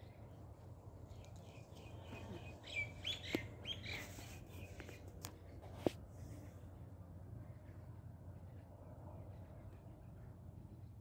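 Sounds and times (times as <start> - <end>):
birds chirping: 1.0 - 5.0.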